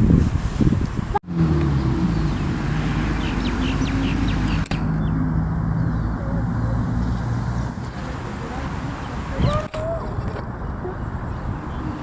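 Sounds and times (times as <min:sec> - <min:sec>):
birds chirping: 0:01.3 - 0:12.0.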